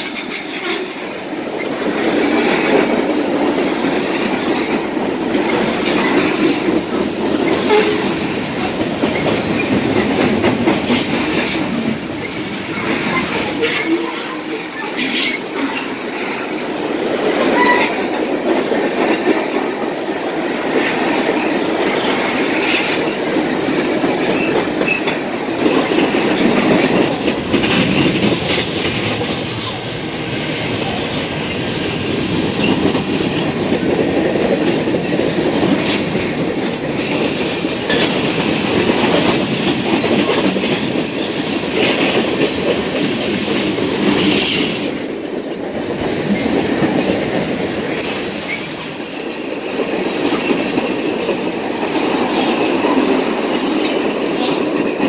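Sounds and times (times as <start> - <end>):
freight train wheels rumbling: 0.0 - 55.0
wheels clicking over rail joints: 20.7 - 30.0.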